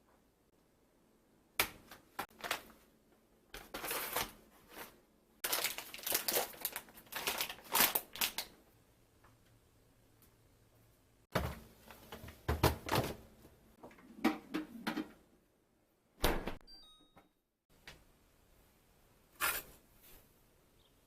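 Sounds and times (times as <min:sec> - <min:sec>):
plastic packaging crinkling: 0:05.4 - 0:08.6.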